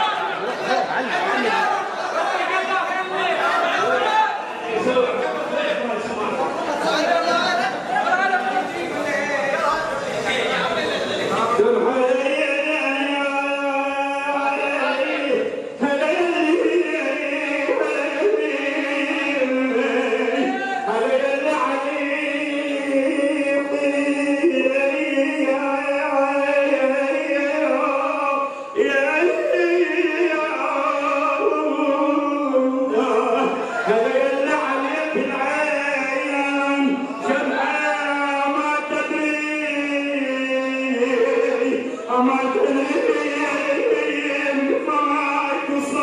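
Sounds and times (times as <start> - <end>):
man singing a lament: 11.5 - 46.0.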